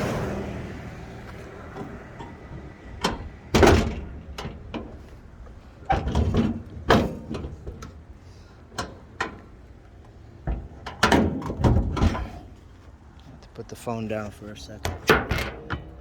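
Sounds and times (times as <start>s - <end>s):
metal clunks of car hood latch: 1.8s - 5.0s, 5.9s - 7.9s, 10.5s - 12.5s, 14.8s - 16.0s.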